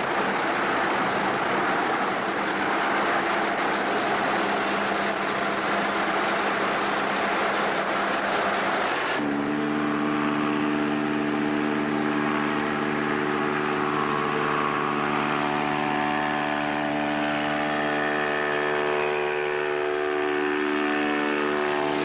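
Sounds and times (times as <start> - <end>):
steady horn-like tone: 9.2 - 22.0.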